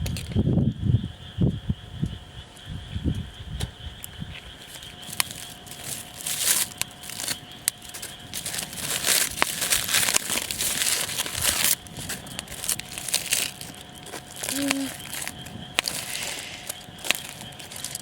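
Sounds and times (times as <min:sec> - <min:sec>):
aluminium foil crinkling: 0:04.6 - 0:18.0.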